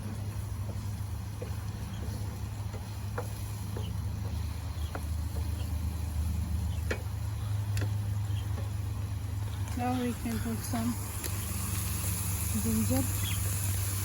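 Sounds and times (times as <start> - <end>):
steady low hum: 0.0 - 14.0
onions frying in oil: 10.2 - 14.0.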